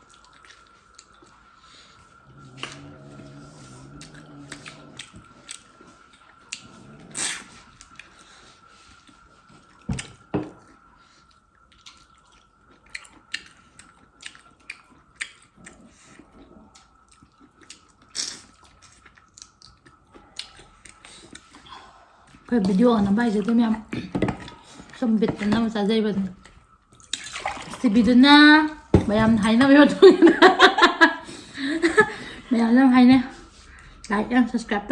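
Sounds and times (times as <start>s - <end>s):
person chewing: 2.3s - 8.2s, 9.0s - 22.5s.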